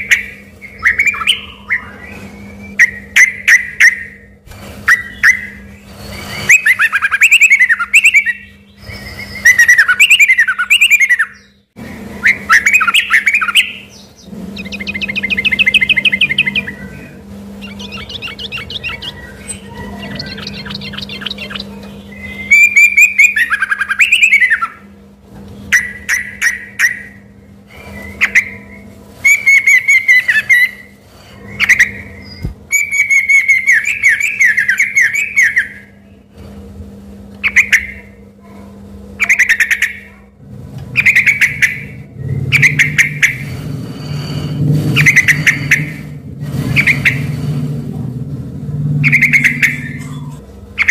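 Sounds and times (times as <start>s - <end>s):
bird singing varied phrases: 0.0s - 25.0s, 25.6s - 36.3s, 37.4s - 38.2s, 39.2s - 40.3s, 40.9s - 43.5s, 49.0s - 50.9s
faint steady hum: 0.0s - 50.9s.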